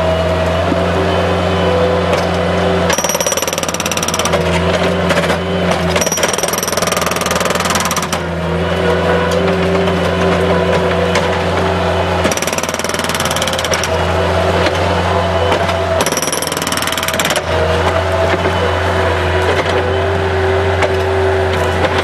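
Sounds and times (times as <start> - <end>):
loader engine running: 0.0 - 22.0
machine hammering concrete: 2.9 - 8.4, 12.2 - 14.0, 15.5 - 18.6.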